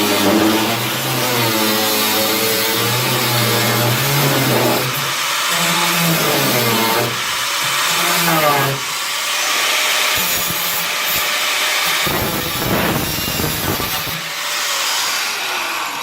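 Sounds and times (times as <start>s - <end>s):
power tool working on steel: 0.0s - 16.0s.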